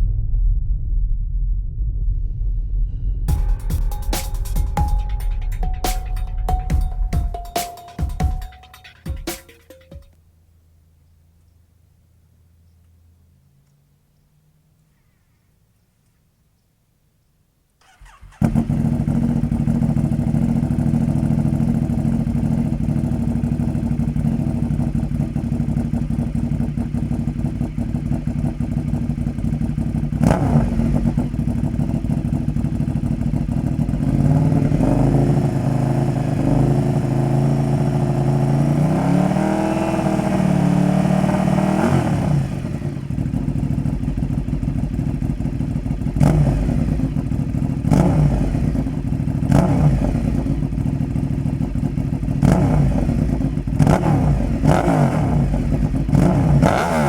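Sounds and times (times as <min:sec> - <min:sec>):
motorcycle engine idling and revving: 0:03.3 - 0:11.0, 0:17.8 - 0:57.0.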